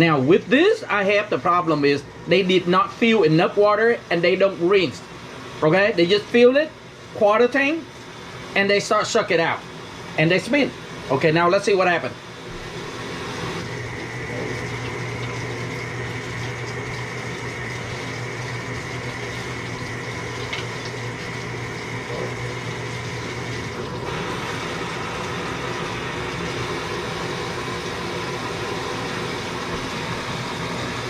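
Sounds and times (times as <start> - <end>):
motor and pump hum: 0.0 - 31.0
water running in washing machine: 0.0 - 31.0.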